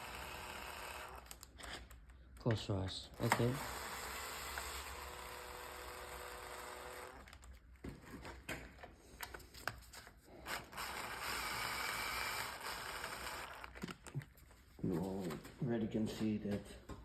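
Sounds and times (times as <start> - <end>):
ratchet running down bolts: 0.0 - 1.4, 3.2 - 7.4, 10.4 - 13.8.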